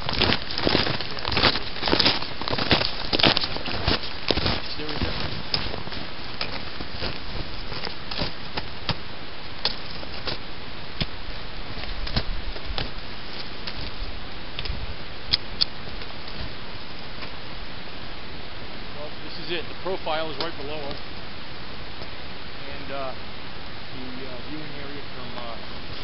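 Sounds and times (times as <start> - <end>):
boots crunching on snow: 0.0 - 14.2
wind over microphone: 11.3 - 15.0.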